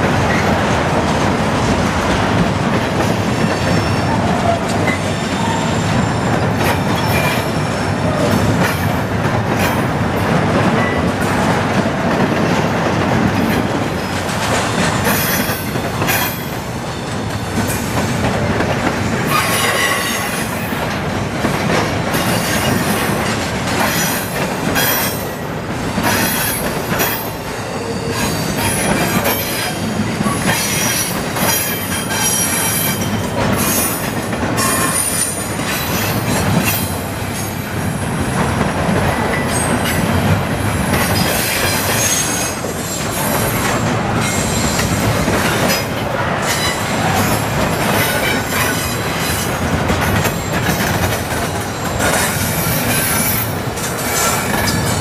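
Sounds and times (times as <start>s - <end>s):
freight train rumbling: 0.0s - 55.0s
train clanks and clatter: 0.0s - 55.0s
high wheel squeal: 3.5s - 7.8s, 27.6s - 34.0s, 34.6s - 37.0s, 41.0s - 44.9s.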